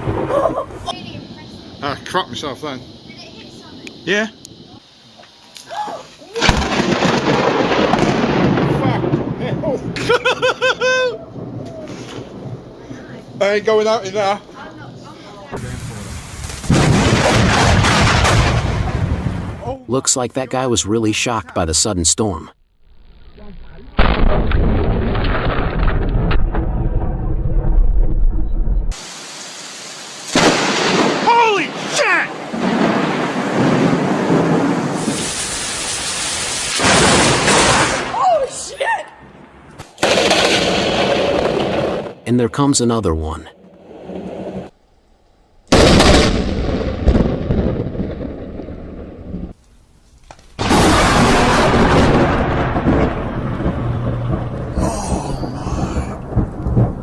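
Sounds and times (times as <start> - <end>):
deep rumble of thunder: 0.0 - 4.7, 6.4 - 19.6, 24.0 - 29.0, 32.4 - 35.5, 36.8 - 38.1, 40.0 - 42.2, 45.7 - 49.6, 50.6 - 57.0
sharp lightning crack: 0.0 - 4.8, 6.3 - 19.7, 24.0 - 38.8, 39.8 - 42.2, 45.7 - 49.6, 50.4 - 57.0
steady hiss: 0.6 - 7.4, 11.8 - 16.8, 29.0 - 38.8.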